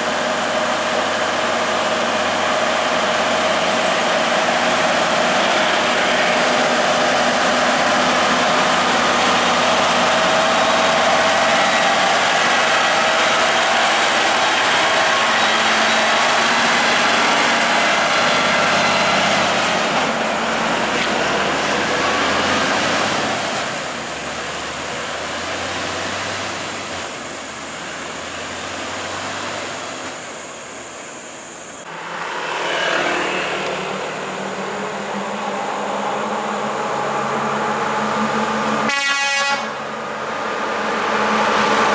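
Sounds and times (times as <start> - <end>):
heavy truck running: 0.0 - 41.9.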